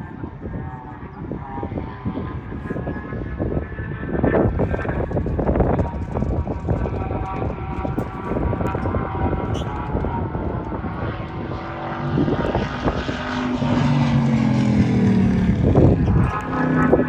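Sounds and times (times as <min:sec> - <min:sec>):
race car engine passing by: 0:05.4 - 0:17.0.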